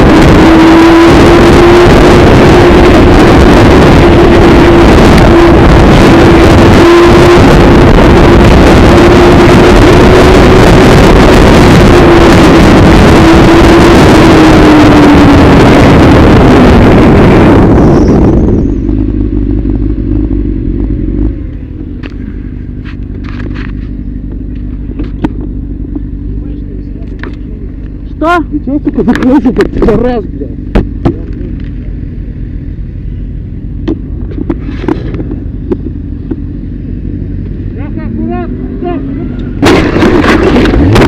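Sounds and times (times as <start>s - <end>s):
engine tone dropping in pitch: 0.0s - 41.0s
vehicle road and wind rush: 0.0s - 41.0s
quiet engine hum: 17.6s - 41.0s.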